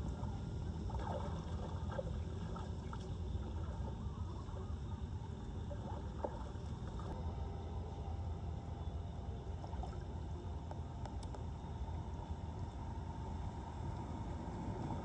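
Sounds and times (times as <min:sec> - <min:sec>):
floodwater flowing: 0:00.0 - 0:05.0, 0:05.6 - 0:07.2.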